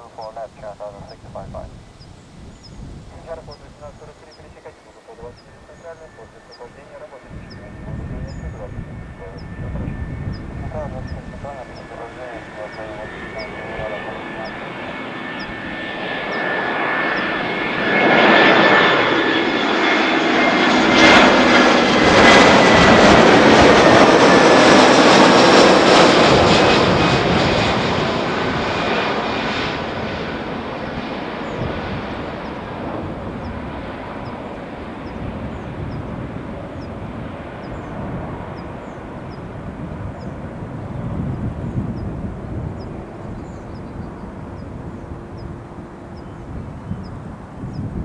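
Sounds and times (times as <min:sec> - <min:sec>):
jet airliner passing: 0:00.0 - 0:48.0
jet engine whine: 0:00.0 - 0:48.0.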